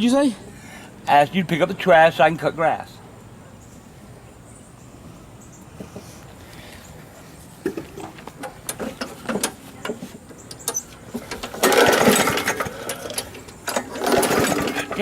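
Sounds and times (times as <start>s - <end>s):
lawn mower clattering knocks: 7.6s - 15.0s
engine cranking without starting: 7.7s - 15.0s.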